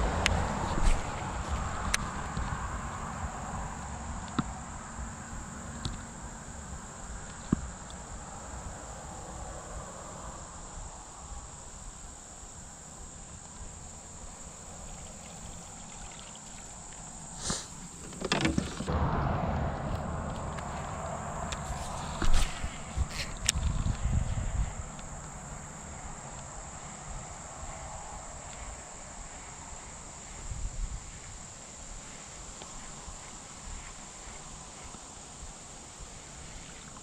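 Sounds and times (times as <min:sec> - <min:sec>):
insects droning: 0:00.0 - 0:37.0
low rumble: 0:18.9 - 0:25.4.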